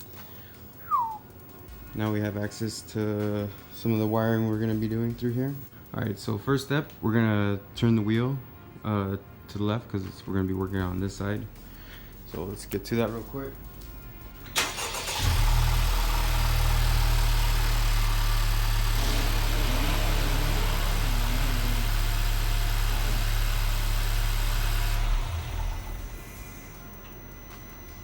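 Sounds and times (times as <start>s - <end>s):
car engine starting and idling: 12.6s - 28.0s.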